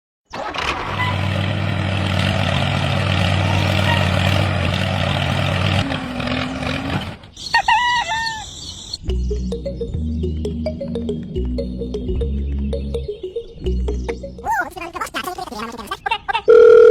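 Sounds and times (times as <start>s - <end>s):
tractor engine running: 0.3s - 7.4s.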